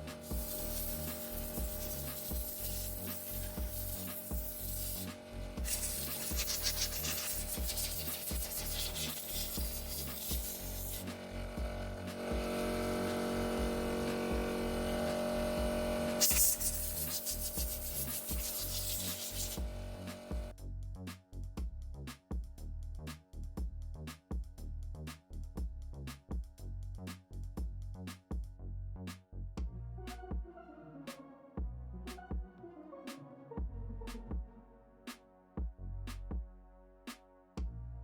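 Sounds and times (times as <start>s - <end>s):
scrubbing a motorcycle: 0.0s - 11.3s, 16.2s - 20.3s
background music with steady beat: 0.0s - 38.0s.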